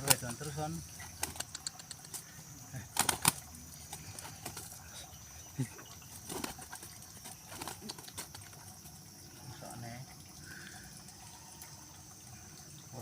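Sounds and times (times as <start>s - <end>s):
pigeon wings flapping: 1.2s - 2.1s, 2.9s - 4.7s, 6.2s - 8.6s.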